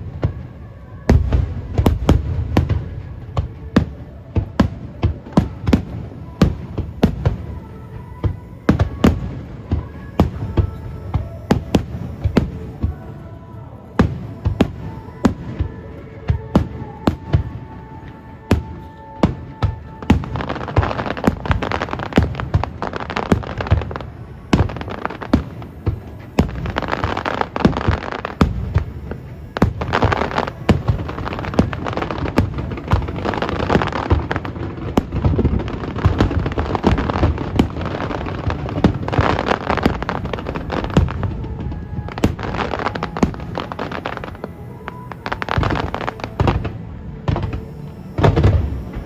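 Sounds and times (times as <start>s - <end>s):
fireworks bangs and crackling: 0.0s - 49.0s.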